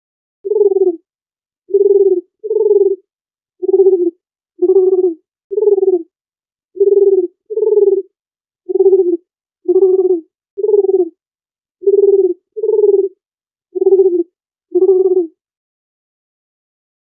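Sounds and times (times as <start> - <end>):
dove cooing: 0.5 - 1.0, 1.7 - 3.0, 3.6 - 6.1, 6.8 - 8.1, 8.7 - 11.2, 11.8 - 13.2, 13.8 - 15.4.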